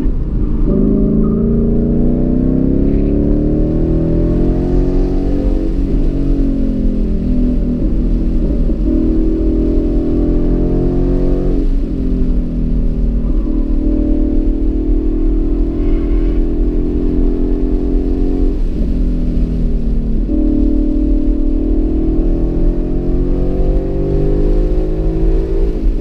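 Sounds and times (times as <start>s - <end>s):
car engine revving from inside cabin: 0.0s - 26.0s.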